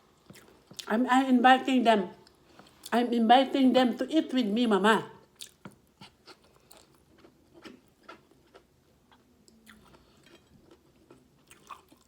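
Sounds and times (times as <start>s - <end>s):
person chewing food: 0.1s - 0.9s, 5.3s - 12.0s.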